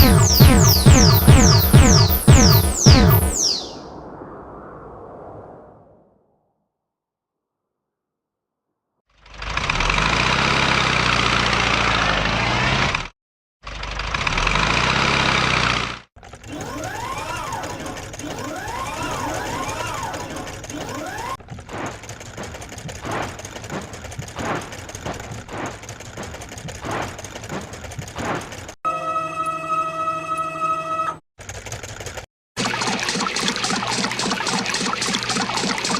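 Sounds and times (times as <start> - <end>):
wailing tone rising and falling: 0.0 - 5.4, 16.5 - 21.4
cartoon motor rumble: 13.7 - 21.4.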